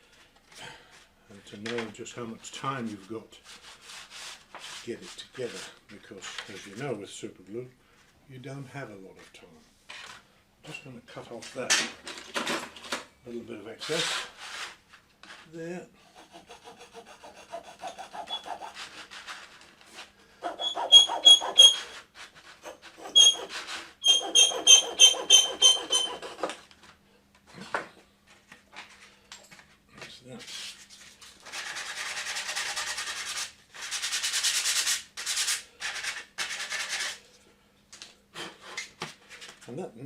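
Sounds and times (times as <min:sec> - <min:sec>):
blade scraping plastic: 0:17.8 - 0:26.7
squeaky chirps: 0:20.5 - 0:21.9, 0:23.0 - 0:26.2.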